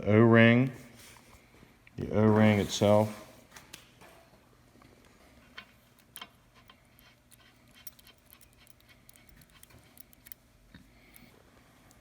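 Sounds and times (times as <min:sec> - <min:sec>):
small parts and tools clicking: 0:05.5 - 0:12.0.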